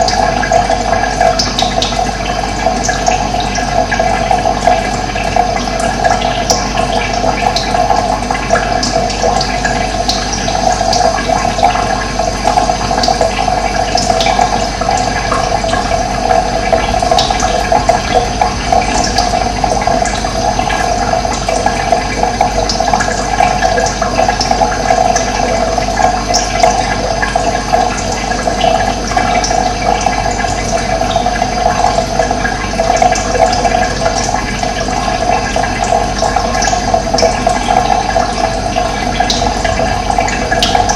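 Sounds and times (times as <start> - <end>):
running water rushing: 0.0 - 40.9.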